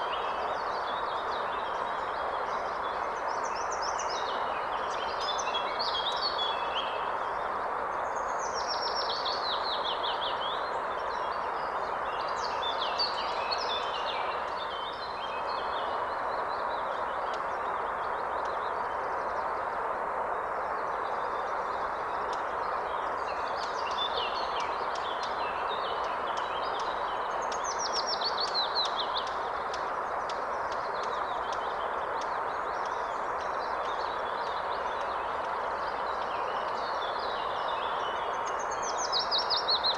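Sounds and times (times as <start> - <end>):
river water flowing: 9.2 - 39.9
songbirds singing: 20.8 - 39.9.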